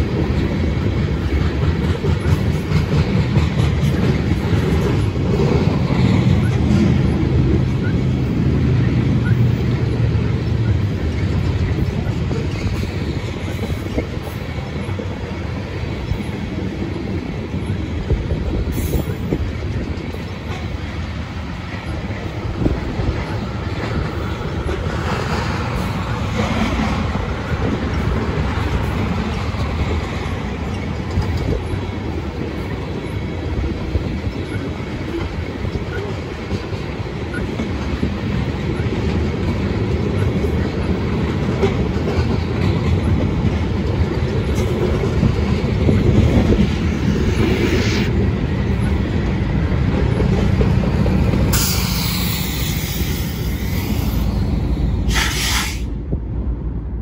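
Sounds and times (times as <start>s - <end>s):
wheels clicking and clacking: 0.0s - 8.0s
steel wheels rumbling on rail: 0.0s - 57.0s.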